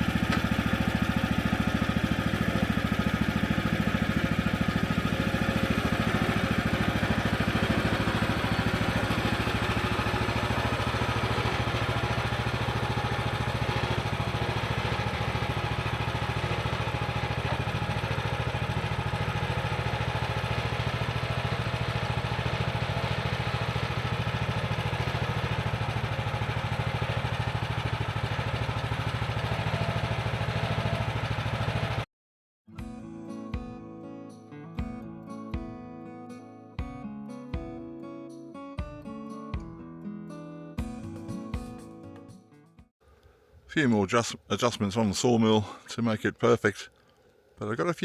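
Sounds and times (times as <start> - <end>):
sawmill engine running: 0.0 - 32.1, 43.1 - 48.0.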